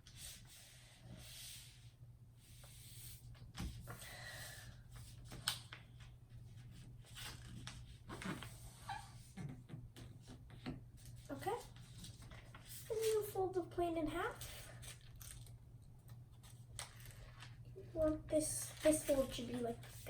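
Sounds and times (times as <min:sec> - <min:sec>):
paper rustling and creasing: 0:04.9 - 0:20.0.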